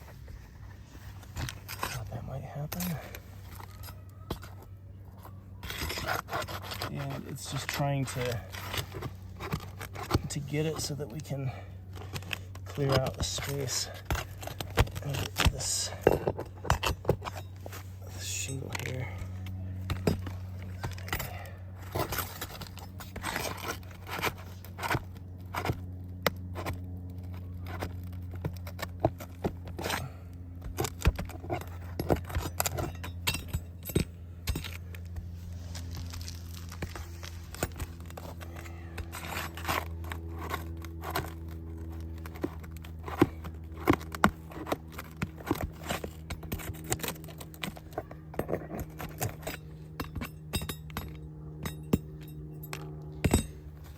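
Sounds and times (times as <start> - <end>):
low hum: 0.0 - 53.9
roof shingles tearing and crackling: 18.8 - 33.2, 34.6 - 49.9.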